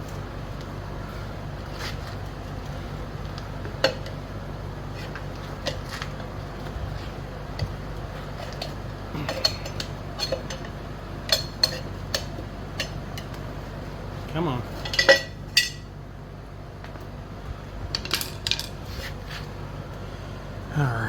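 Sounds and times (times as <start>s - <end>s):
steady low hum: 0.0s - 21.0s
metal tools clinking on wheel rim: 14.7s - 15.9s.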